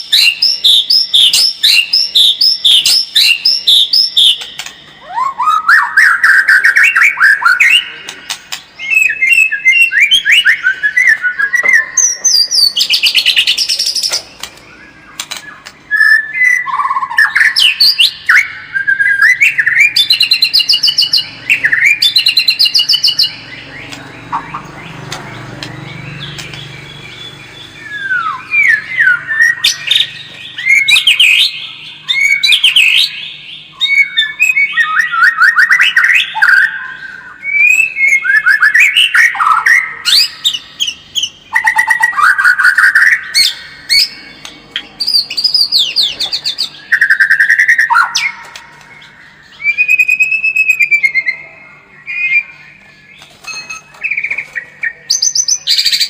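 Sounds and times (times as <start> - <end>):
bird singing whistled song: 0.0 - 56.0.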